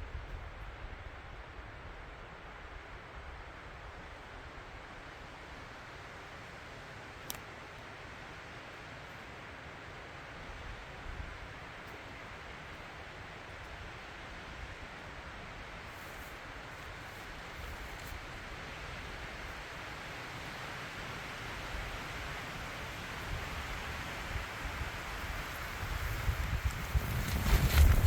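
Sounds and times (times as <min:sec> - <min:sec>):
wind rushing through trees: 0:00.0 - 0:28.0
low rumble of gusts: 0:21.7 - 0:28.0.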